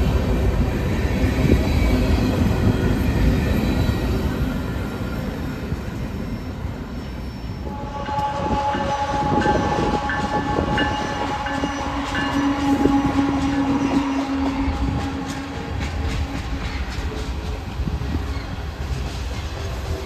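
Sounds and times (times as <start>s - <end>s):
freight train rumbling past: 0.0s - 20.0s
train horn: 7.6s - 16.9s
railroad crossing bell dinging: 7.8s - 14.4s.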